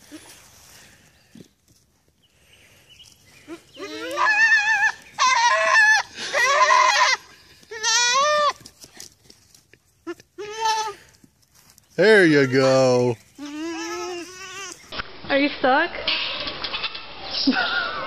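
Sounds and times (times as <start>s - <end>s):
goat bleating: 3.5s - 8.7s, 10.0s - 11.1s, 12.1s - 14.9s.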